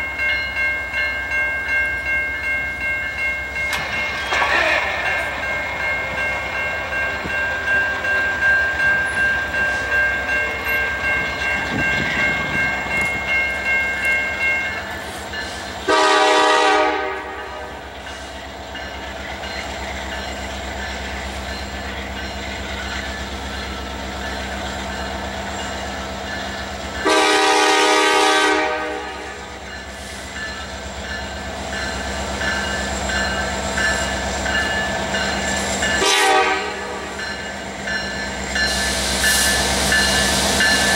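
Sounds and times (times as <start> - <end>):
low train rumble: 0.0 - 40.9
train cars clicking over rail joints: 3.4 - 15.9
locomotive air horn blasts: 15.8 - 17.8, 27.0 - 29.5, 36.0 - 37.1.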